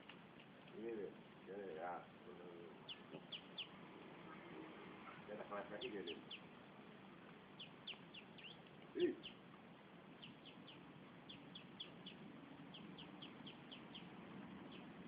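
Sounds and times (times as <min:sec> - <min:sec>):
birds peeping: 0:00.0 - 0:15.0
low bird call: 0:02.7 - 0:06.5, 0:07.6 - 0:09.5, 0:10.2 - 0:15.0.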